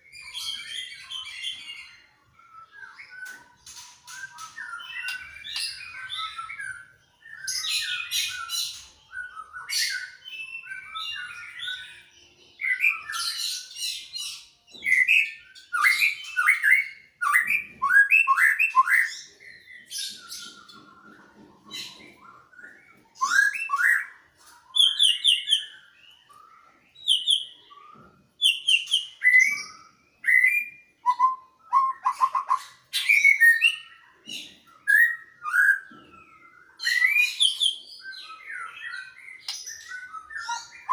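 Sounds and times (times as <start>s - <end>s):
birds singing whistled notes: 0.0s - 40.9s
bird chattering rattles and trills: 3.0s - 10.2s, 31.7s - 40.9s.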